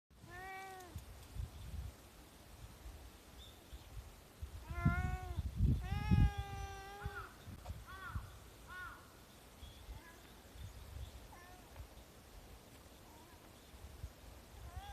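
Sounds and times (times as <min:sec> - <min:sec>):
cat meowing: 0:00.2 - 0:01.0, 0:04.6 - 0:07.3, 0:14.6 - 0:14.9.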